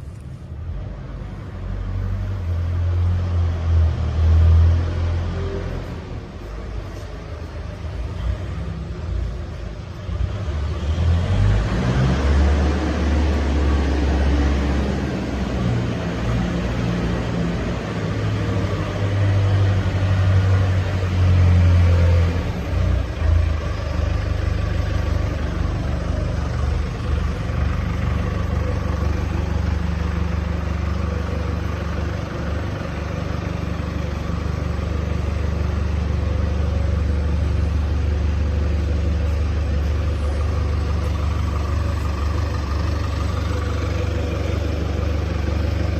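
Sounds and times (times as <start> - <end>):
air compressor diesel engine running: 12.6 - 45.9.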